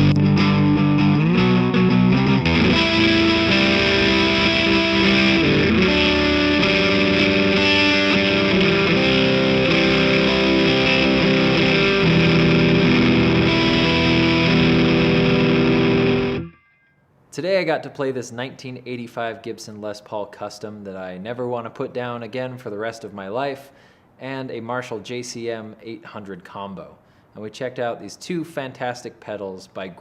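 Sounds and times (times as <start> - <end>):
distorted electric guitar chords: 0.0 - 16.6.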